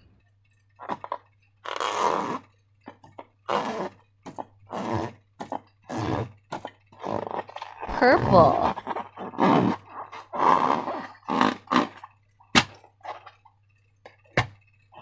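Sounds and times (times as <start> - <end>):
slime squelching: 5.4 - 13.4.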